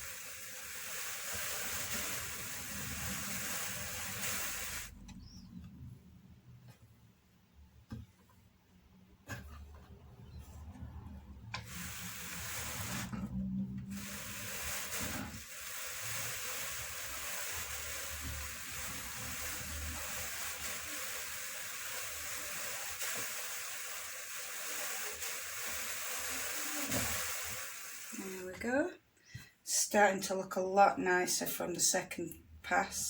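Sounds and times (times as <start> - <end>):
drum carder brushing wool: 0.0 - 5.1, 9.2 - 28.8.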